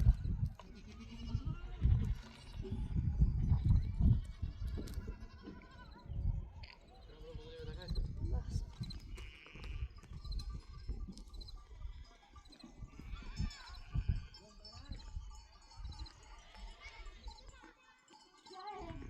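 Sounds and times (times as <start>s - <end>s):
livestock bleating: 0.6s - 2.7s, 4.0s - 6.2s, 7.0s - 8.0s, 9.0s - 10.1s, 11.8s - 14.6s.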